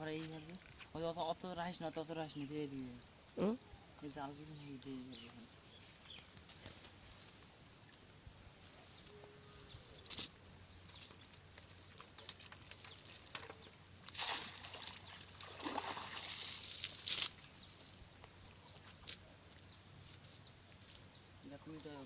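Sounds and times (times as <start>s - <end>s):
water splashing and sloshing: 10.9s - 19.2s
sharp water slaps: 14.0s - 17.4s.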